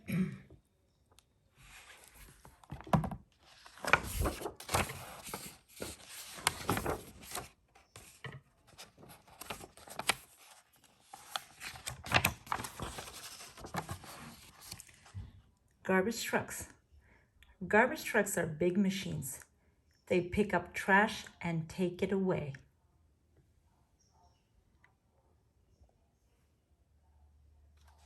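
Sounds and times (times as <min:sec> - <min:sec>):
book pages turning: 0:01.6 - 0:15.2.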